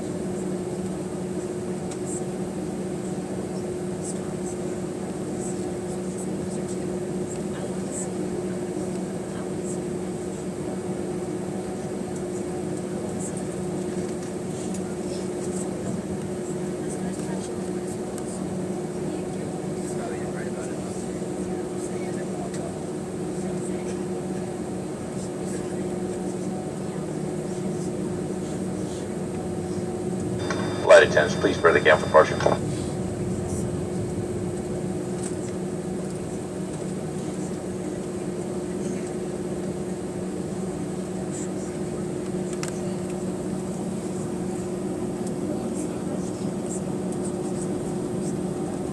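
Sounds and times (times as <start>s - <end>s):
aircraft cabin drone: 29.0s - 36.9s.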